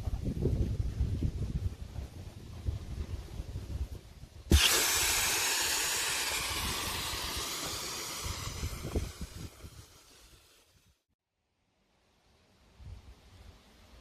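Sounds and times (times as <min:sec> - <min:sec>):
air hissing from ball: 0:04.5 - 0:11.0.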